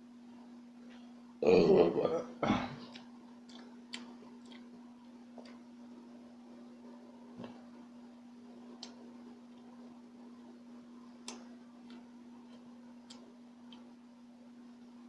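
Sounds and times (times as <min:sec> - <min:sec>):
steady low hum: 0:00.0 - 0:15.0
sticky mouth clicks while chewing: 0:02.9 - 0:04.8.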